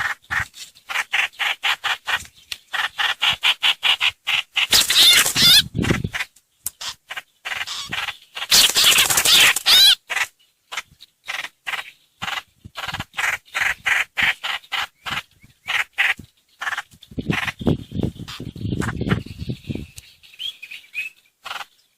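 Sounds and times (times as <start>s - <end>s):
harsh bird calls: 0.0s - 21.9s.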